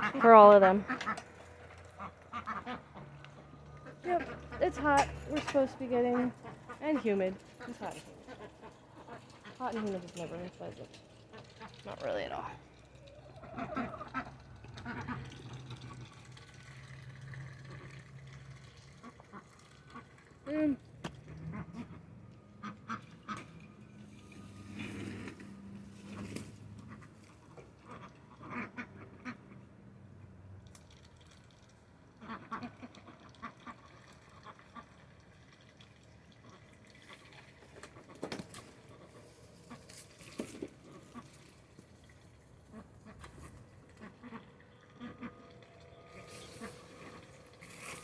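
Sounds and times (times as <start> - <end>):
ducks quacking: 0.0 - 1.2, 1.9 - 10.2, 11.3 - 15.6, 42.7 - 48.0.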